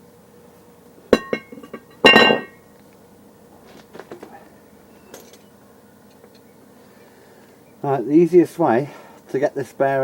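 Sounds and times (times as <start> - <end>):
loud ringing metal clang: 1.2 - 2.6.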